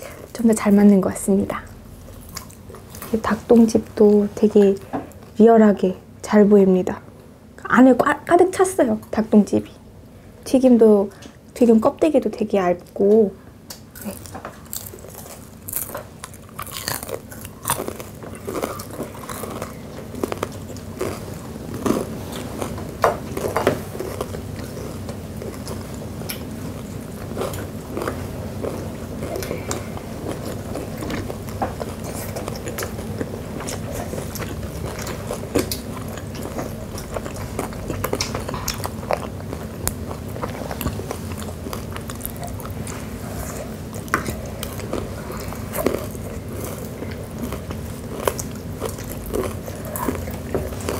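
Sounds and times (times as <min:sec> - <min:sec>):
faint low hum: 0:00.0 - 0:50.9
crunching fried chicken: 0:13.7 - 0:50.9
wet chewing: 0:13.7 - 0:50.9.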